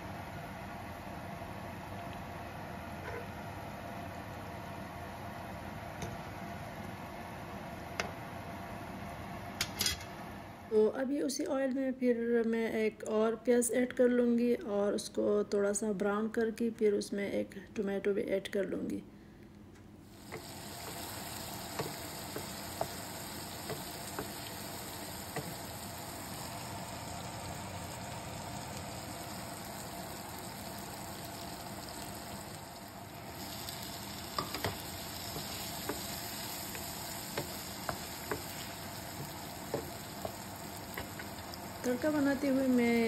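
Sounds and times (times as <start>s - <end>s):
onions sizzling in oil: 20.1s - 43.0s.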